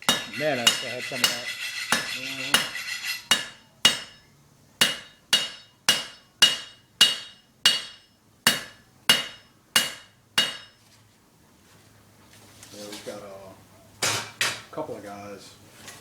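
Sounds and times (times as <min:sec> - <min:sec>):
hammer striking anvil: 0:00.0 - 0:10.8.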